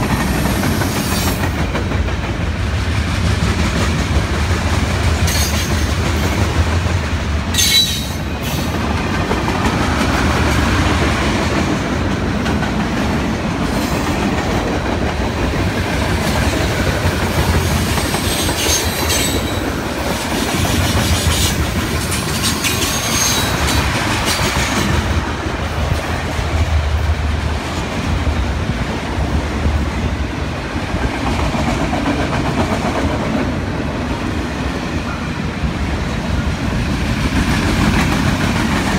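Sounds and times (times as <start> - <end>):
freight train wheels clattering: 0.0 - 34.0, 36.2 - 38.9
metallic wheel squeals: 7.6 - 8.3, 22.4 - 23.5.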